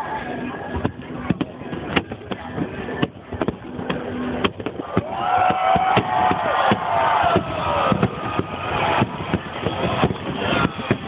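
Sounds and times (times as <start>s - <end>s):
fireworks bursting: 0.7s - 11.0s
crowd cheering and whooping: 4.8s - 11.0s.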